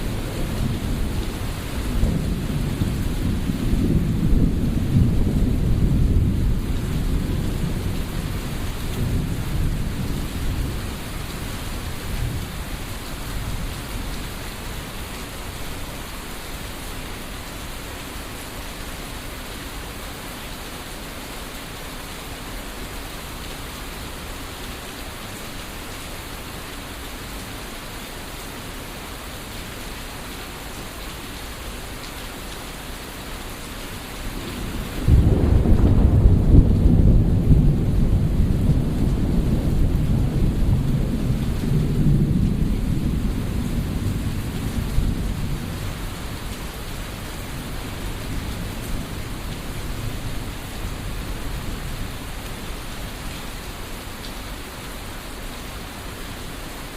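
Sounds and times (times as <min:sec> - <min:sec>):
deep thunder rumble: 0:00.0 - 0:12.6, 0:34.4 - 0:46.3
steady rain falling: 0:00.0 - 0:56.9.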